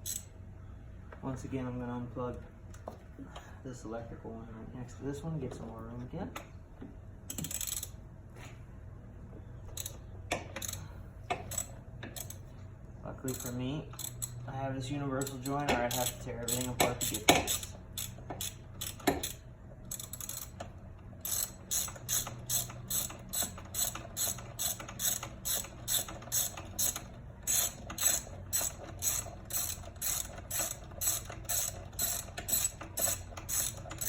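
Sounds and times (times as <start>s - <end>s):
socket ratchet clicking: 0.0s - 0.3s, 7.3s - 8.0s, 9.7s - 12.4s, 13.3s - 14.4s, 15.2s - 34.0s.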